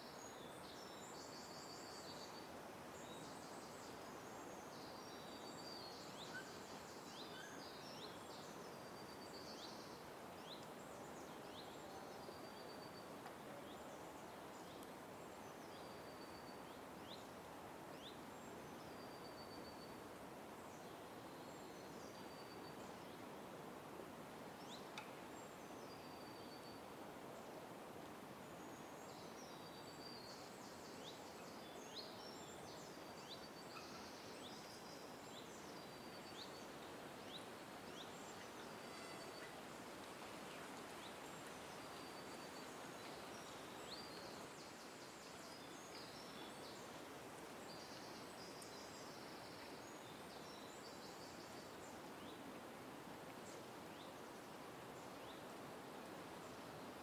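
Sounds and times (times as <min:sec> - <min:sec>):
birds chirping: 0:29.2 - 0:39.8.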